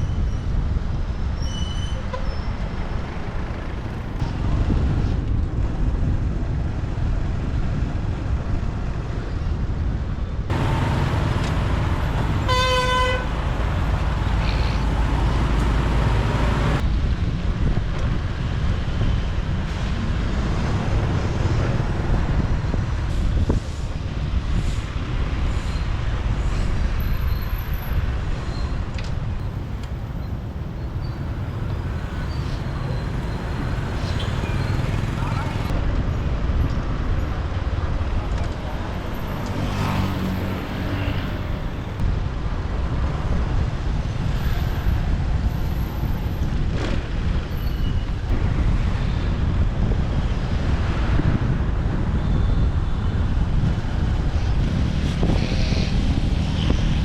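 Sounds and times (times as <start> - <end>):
motorbike and traffic rumble: 0.0 - 57.0
wind noise: 0.0 - 57.0
vehicle horn toot: 10.5 - 16.8.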